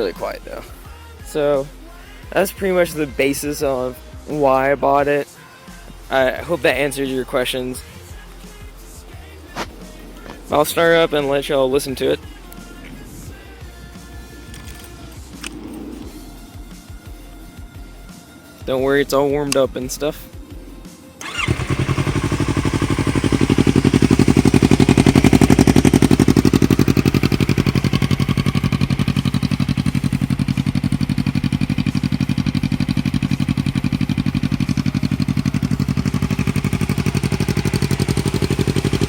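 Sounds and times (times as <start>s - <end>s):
motorcycle engine idling: 5.8s - 18.1s, 20.5s - 39.0s.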